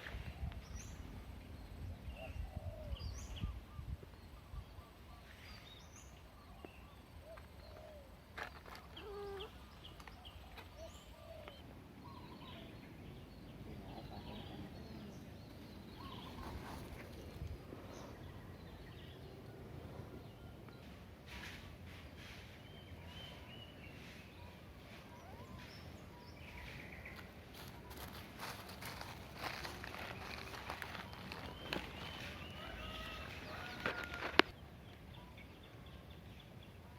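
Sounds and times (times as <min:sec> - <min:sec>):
small animal or bird chirps: 0:08.6 - 0:12.7.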